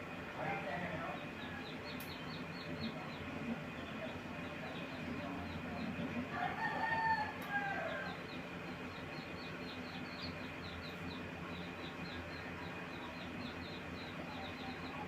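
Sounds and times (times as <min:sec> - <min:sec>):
rooster crowing: 0:06.3 - 0:08.2.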